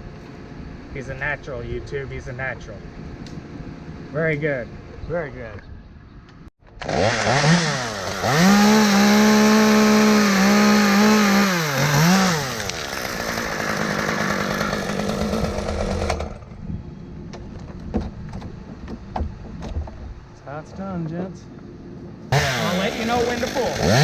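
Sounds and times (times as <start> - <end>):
chainsaw revving: 6.7 - 16.5, 22.3 - 24.0.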